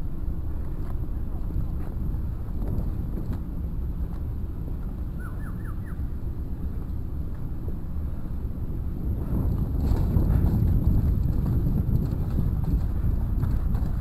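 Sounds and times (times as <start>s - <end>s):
wind buffeting microphone: 0.0s - 14.0s
bird calling rising notes: 5.1s - 6.2s.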